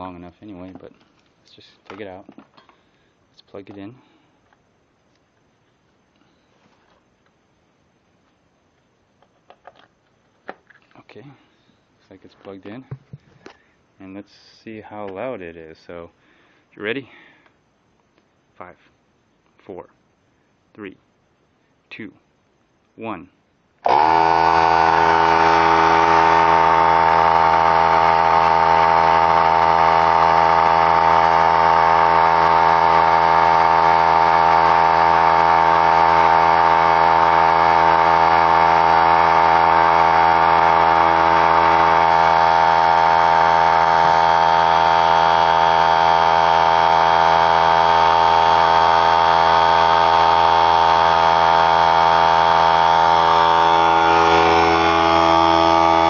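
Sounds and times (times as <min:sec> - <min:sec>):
air compressor humming: 0:23.8 - 0:56.0.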